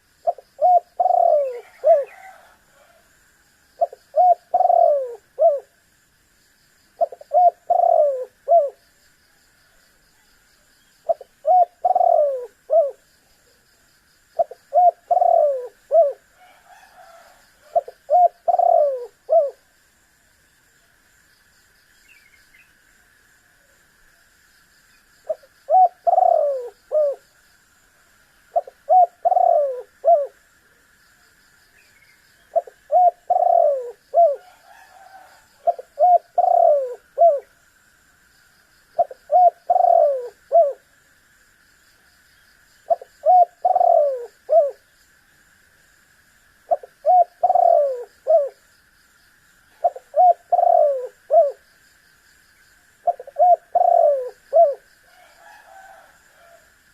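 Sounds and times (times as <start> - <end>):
faint high hiss: 0.0 - 56.9
dove cooing: 0.2 - 3.1, 3.8 - 5.8, 7.0 - 8.8, 11.0 - 13.1, 14.4 - 19.7, 25.3 - 27.2, 28.5 - 30.4, 32.5 - 37.5, 39.0 - 40.9, 42.9 - 44.8, 46.7 - 48.6, 49.7 - 51.6, 53.0 - 56.6.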